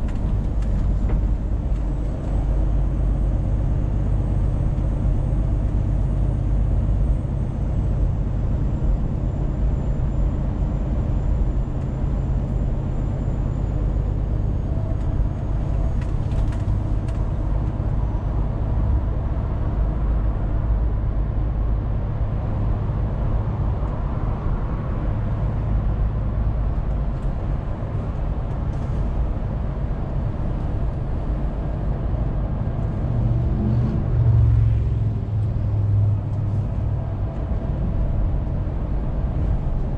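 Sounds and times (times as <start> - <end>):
truck engine running: 0.0 - 20.6
road noise: 0.0 - 39.9.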